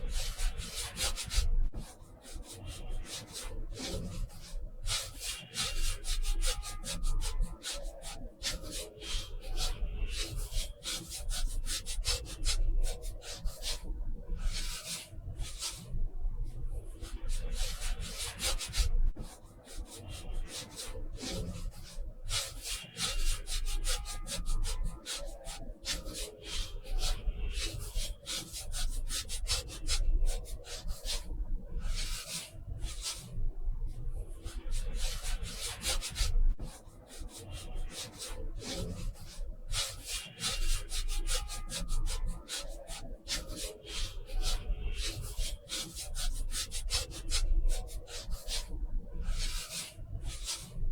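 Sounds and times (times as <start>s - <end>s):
paintbrush scratching on paper: 33.9s - 50.8s.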